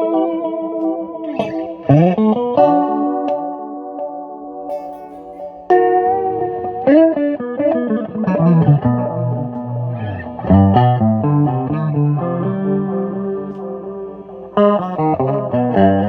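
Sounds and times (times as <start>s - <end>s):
electric guitar melody with bends: 0.0s - 16.0s.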